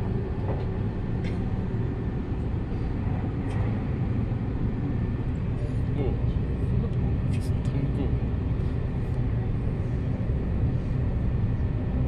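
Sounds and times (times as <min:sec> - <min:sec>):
train wheels rumbling on rail: 0:00.0 - 0:07.9.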